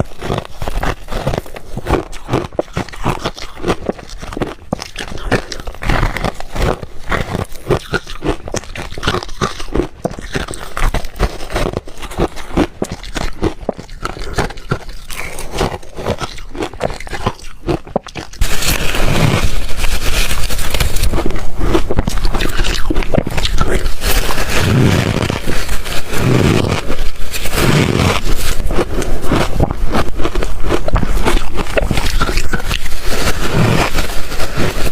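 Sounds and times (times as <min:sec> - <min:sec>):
ice crunching between teeth: 0:00.0 - 0:34.9.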